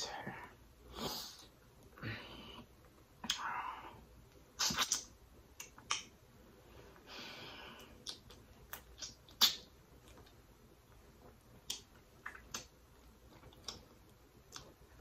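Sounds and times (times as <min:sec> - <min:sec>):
loud mouth snap: 0:03.2 - 0:03.5, 0:04.6 - 0:06.1, 0:07.8 - 0:09.7
wet mouth clicks and lip smacks: 0:03.2 - 0:03.5, 0:04.6 - 0:06.1, 0:08.0 - 0:10.4, 0:11.6 - 0:13.9.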